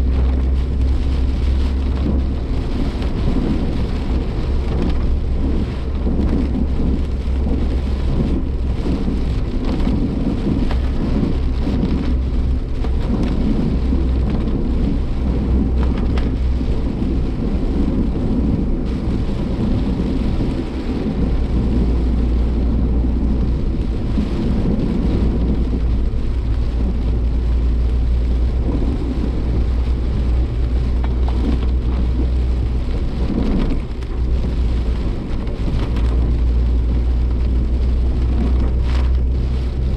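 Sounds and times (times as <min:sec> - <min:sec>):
gusting wind: 0:00.0 - 0:39.9
heavy rain hitting a car: 0:00.0 - 0:39.9
road and engine rumble: 0:00.0 - 0:39.9.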